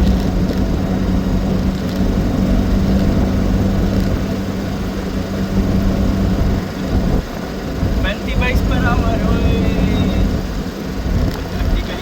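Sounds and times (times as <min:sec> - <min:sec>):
car engine humming: 0:00.0 - 0:12.0
road and drivetrain rumble: 0:00.0 - 0:12.0.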